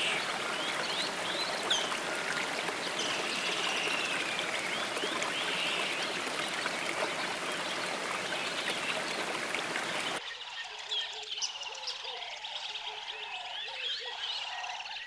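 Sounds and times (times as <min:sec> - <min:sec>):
birds chirping: 0:00.0 - 0:10.2
stream running: 0:00.0 - 0:10.2.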